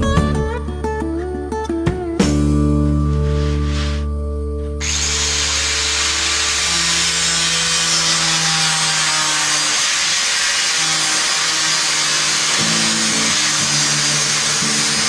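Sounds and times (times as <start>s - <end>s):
background music: 0.0s - 6.7s
power tool cutting: 4.8s - 15.0s.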